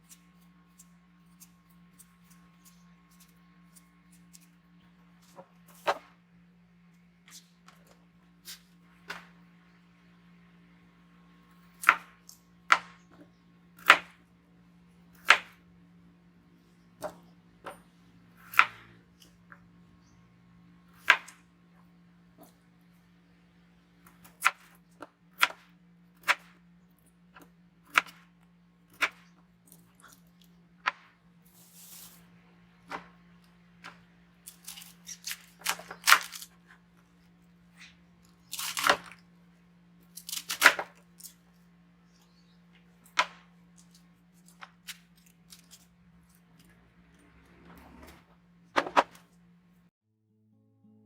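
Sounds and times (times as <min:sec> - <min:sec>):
low appliance hum: 0:00.0 - 0:49.9
tearing scraping sounds: 0:31.4 - 0:33.2, 0:33.8 - 0:39.2, 0:40.0 - 0:41.6, 0:43.0 - 0:48.2.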